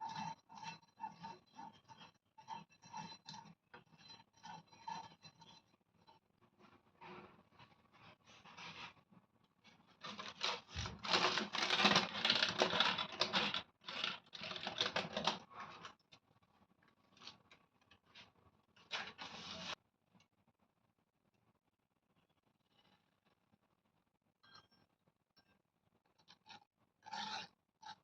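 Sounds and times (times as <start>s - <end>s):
kitchen scratching and scraping: 0.0s - 16.0s, 17.1s - 19.8s, 26.4s - 28.0s.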